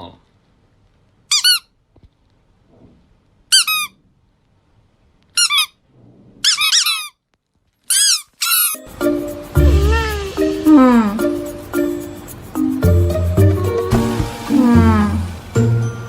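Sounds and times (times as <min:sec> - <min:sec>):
short high-pitched squeaks: 0:05.4 - 0:05.8, 0:06.4 - 0:07.2, 0:07.8 - 0:08.9.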